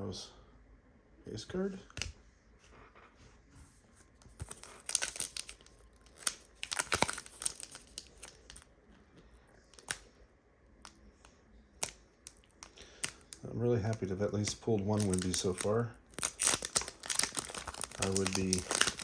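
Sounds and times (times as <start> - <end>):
wrapper tearing and crinkling: 4.4 - 8.7, 9.5 - 10.1, 11.8 - 13.4, 14.4 - 19.0.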